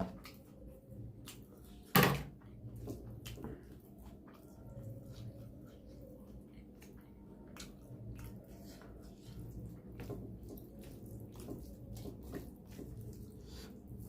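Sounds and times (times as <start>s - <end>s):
person chewing food: 0.0s - 1.9s, 2.5s - 14.0s.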